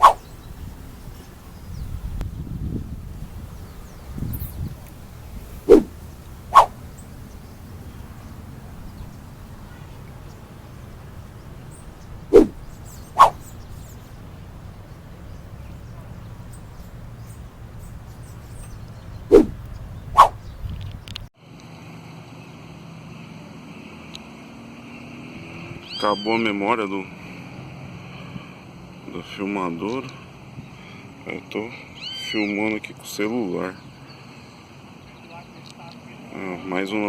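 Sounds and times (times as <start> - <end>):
low background noise: 0.0 - 24.4.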